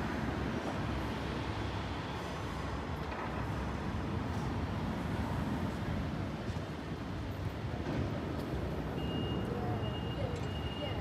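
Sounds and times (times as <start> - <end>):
train rumbling over tracks: 0.0 - 11.0.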